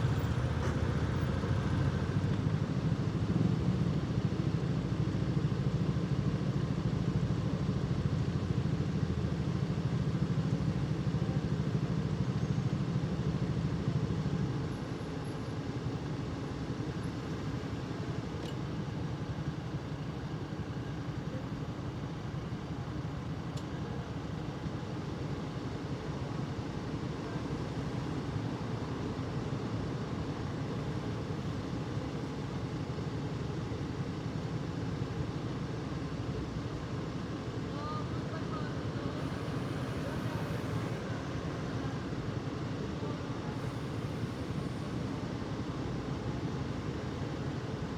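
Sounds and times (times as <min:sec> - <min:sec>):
traffic noise: 0:00.0 - 0:04.0, 0:37.6 - 0:46.4.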